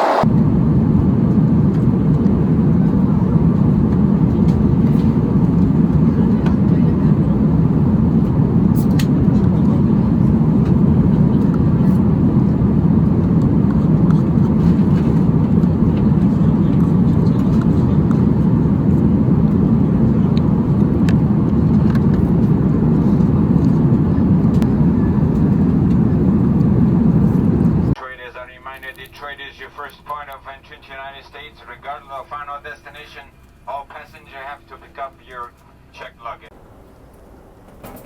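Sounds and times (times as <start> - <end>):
airliner cabin rumble: 0.0 - 28.0, 36.4 - 38.0.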